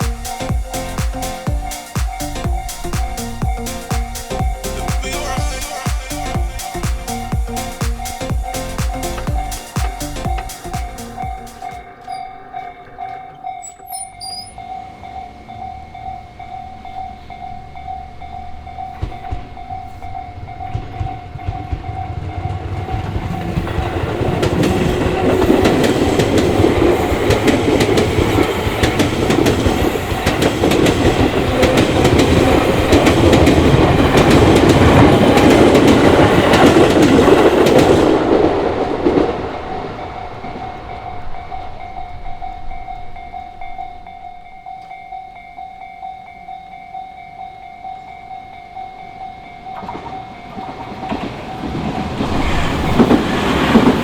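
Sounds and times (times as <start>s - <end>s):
level crossing bell ringing: 0.0s - 22.1s, 39.8s - 51.7s
train wheels clattering over rail joints: 18.5s - 40.9s, 49.7s - 54.0s.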